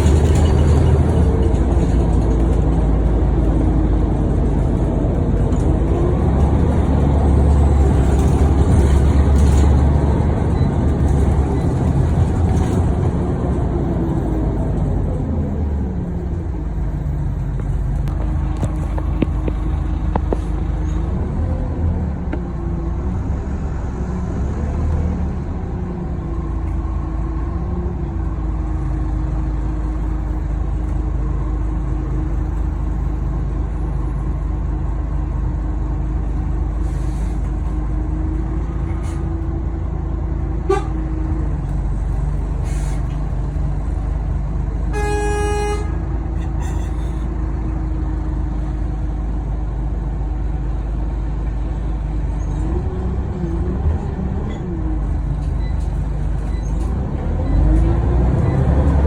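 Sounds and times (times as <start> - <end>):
bus engine drone with whine: 0.0 - 59.0
vehicle horn toot: 40.7 - 41.0, 44.9 - 46.0.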